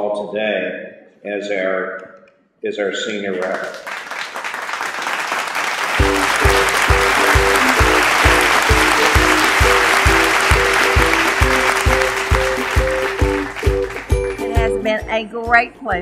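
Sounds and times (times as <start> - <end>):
audience applauding: 3.3 - 14.8
music with steady beat: 6.0 - 16.0.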